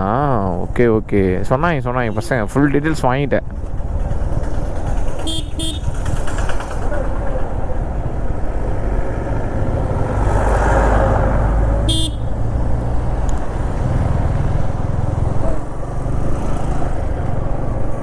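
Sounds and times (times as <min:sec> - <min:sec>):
motorcycle engine rumble: 0:00.0 - 0:18.0
road noise: 0:00.0 - 0:18.0
vehicle horn toot: 0:05.2 - 0:06.2, 0:11.8 - 0:12.4.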